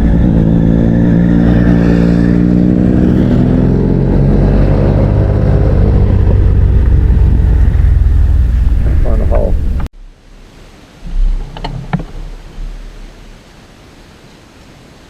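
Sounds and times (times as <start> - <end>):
motorcycle engine accelerating: 0.0 - 9.9
wind and road noise: 0.0 - 15.0.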